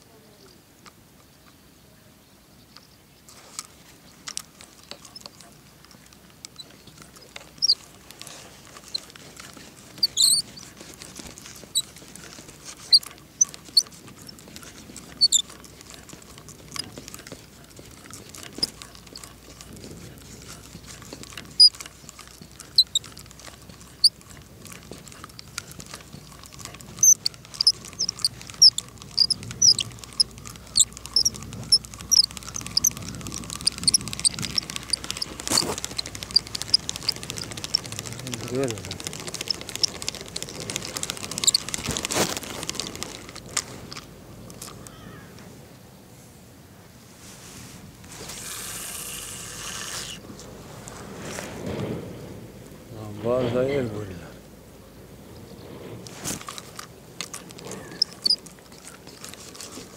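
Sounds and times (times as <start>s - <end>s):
small birds chirping: 0.1s - 44.0s, 57.4s - 59.9s.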